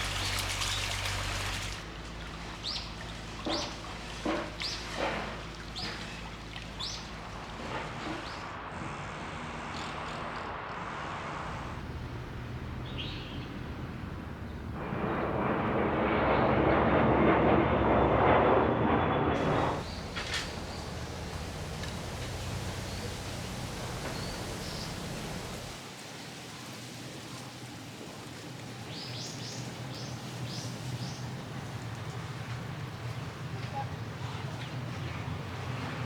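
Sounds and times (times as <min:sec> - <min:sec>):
steady background rush: 0:13.9 - 0:25.8
loud rushing noise: 0:14.7 - 0:25.8
bird chirps: 0:22.6 - 0:25.6.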